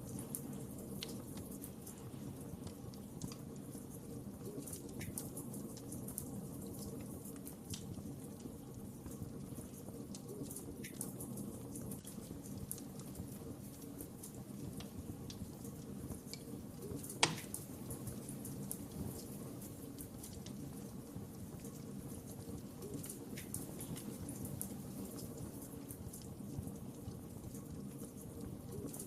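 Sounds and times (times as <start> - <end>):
fire crackling and popping: 0.0 - 29.0
wood fire rumbling: 0.0 - 29.0.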